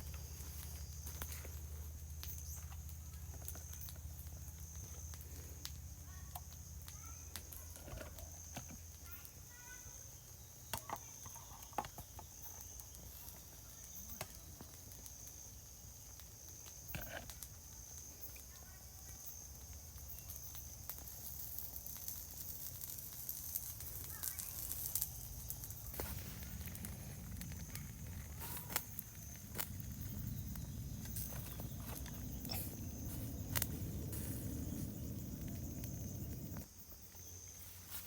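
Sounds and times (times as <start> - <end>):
scattered clicks and crackles: 10.7 - 36.7
low rumble: 25.9 - 36.7
high-pitched insect drone: 27.6 - 36.6.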